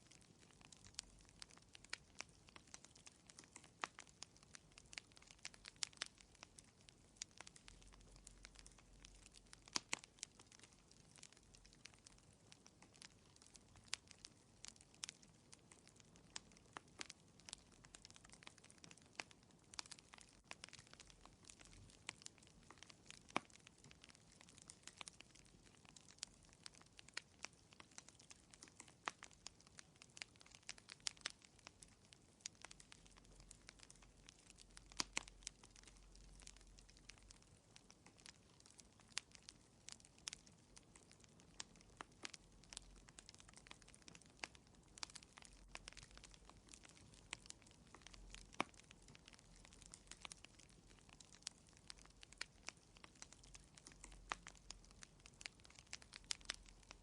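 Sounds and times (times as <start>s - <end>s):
fire crackling: 0.0s - 57.0s.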